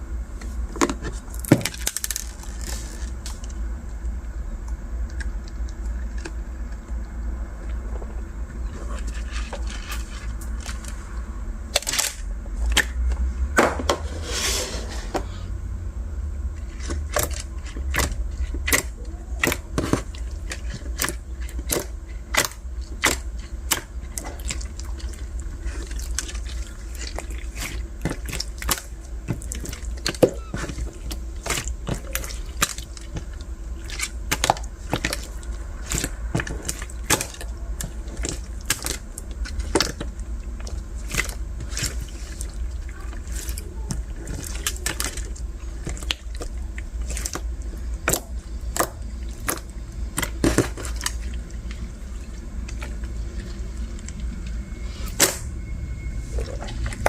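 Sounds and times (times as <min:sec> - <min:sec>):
low steady hum: 0:00.0 - 0:57.0
slime squishing with sticky pops: 0:16.6 - 0:55.6.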